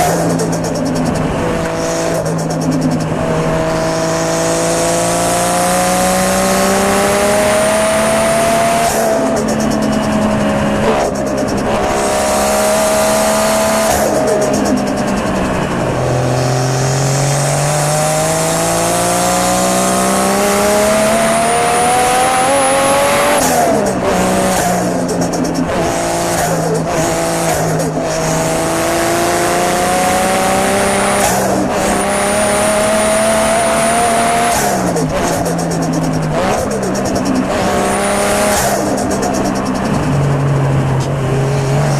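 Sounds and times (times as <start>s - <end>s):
chattering boost release: 0.0s - 3.4s, 8.9s - 12.2s, 13.9s - 15.9s, 23.2s - 28.4s, 34.5s - 41.0s
car engine accelerating hard: 0.0s - 41.9s.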